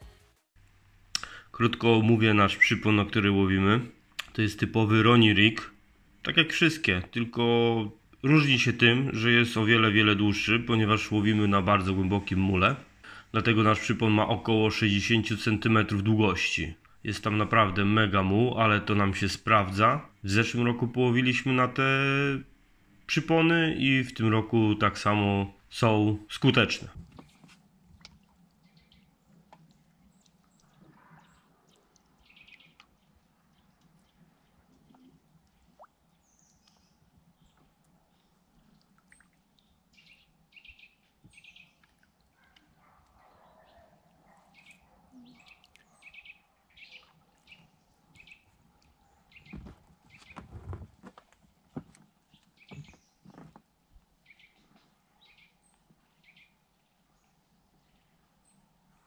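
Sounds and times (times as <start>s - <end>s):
soft high bird chirps: 28.5s - 50.4s.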